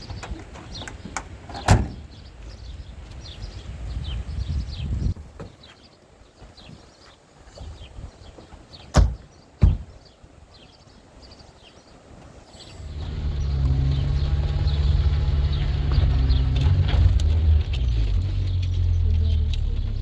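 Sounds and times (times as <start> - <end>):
engine humming: 12.3 - 20.0.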